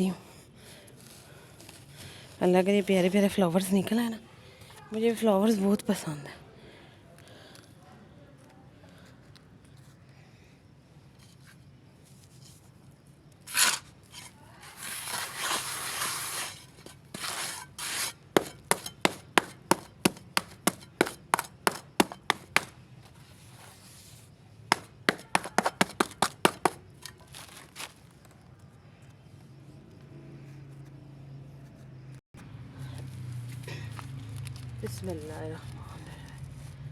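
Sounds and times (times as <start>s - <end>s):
hard molds scraping and rubbing: 13.5s - 27.9s
quick sharp taps: 24.7s - 26.8s.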